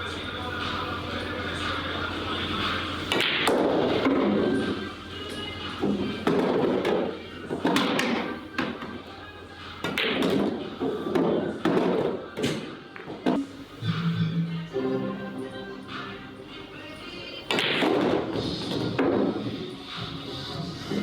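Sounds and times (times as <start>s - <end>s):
background music: 0.0s - 21.0s
billiard balls clacking: 2.7s - 4.9s, 5.7s - 9.1s, 9.8s - 13.6s, 17.5s - 19.7s.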